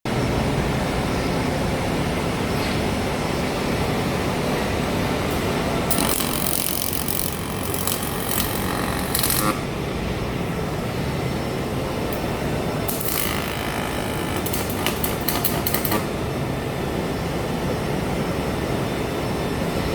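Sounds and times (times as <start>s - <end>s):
machine hum: 4.6s - 17.9s.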